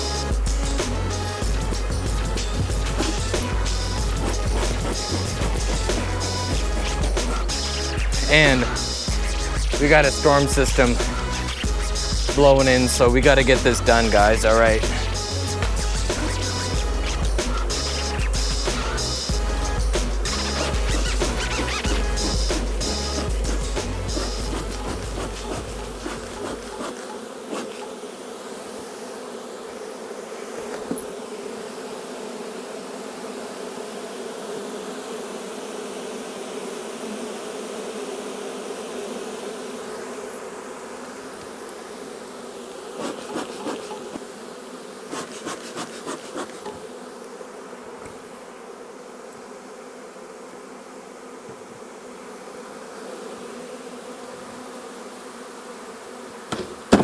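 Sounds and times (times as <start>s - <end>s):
bee swarm buzzing: 0.0s - 57.0s
short knocks: 56.5s - 57.0s.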